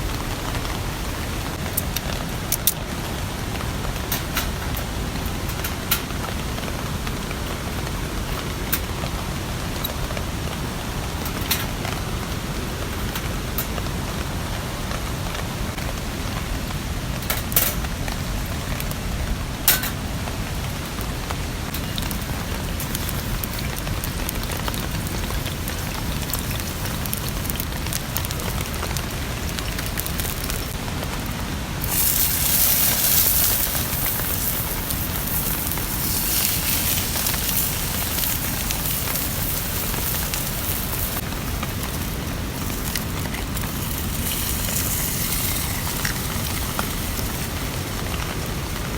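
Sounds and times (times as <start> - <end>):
steady rain falling: 0.0 - 48.9
louder hiss: 31.8 - 48.1.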